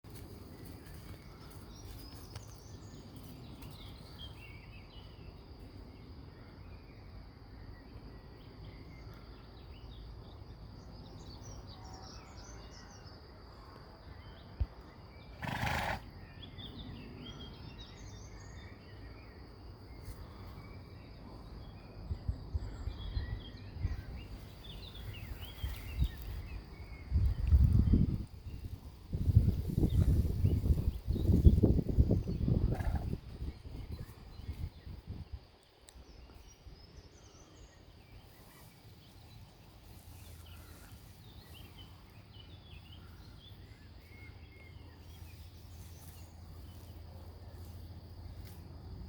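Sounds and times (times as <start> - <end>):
small birds chirping: 14.2 - 48.6
low wind rumble: 16.6 - 38.5.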